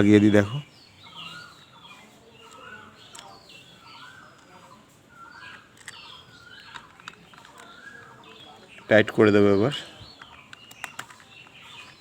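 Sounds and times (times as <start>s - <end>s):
birds calling: 0.0s - 12.0s
plastic parts clicking: 2.5s - 3.4s, 5.4s - 8.3s, 10.0s - 12.0s.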